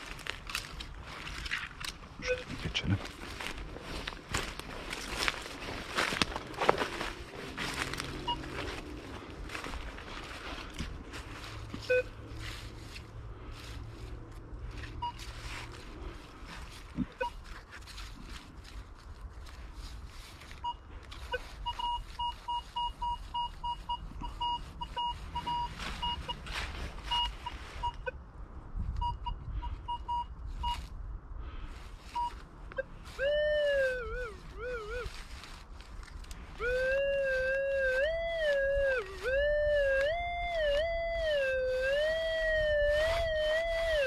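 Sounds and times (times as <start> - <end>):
coil sweeping through ground cover: 0.0 - 28.0, 33.0 - 44.0
metal detector wavering tone: 2.2 - 2.6, 5.1 - 9.7, 11.8 - 12.2, 32.2 - 35.1, 36.6 - 44.0
metal detector beeps: 2.2 - 2.8, 6.0 - 8.9, 11.8 - 12.2, 14.8 - 15.5, 17.0 - 17.6, 20.6 - 28.2, 29.0 - 30.9, 32.1 - 35.1, 36.6 - 44.0.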